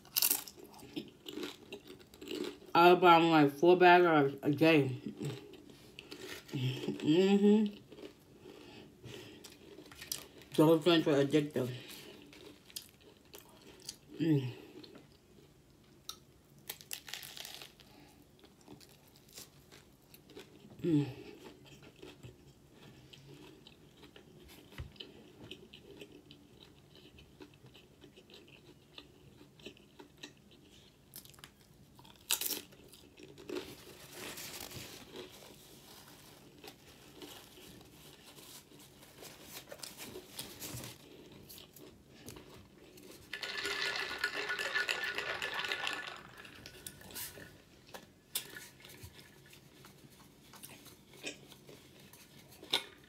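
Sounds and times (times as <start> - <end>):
chewing a sandwich: 0.0 - 2.7, 5.0 - 10.6, 11.8 - 43.4, 45.6 - 53.0
chips crunching: 0.0 - 2.7, 16.6 - 20.6, 25.7 - 49.4
rustling noise: 33.8 - 41.0.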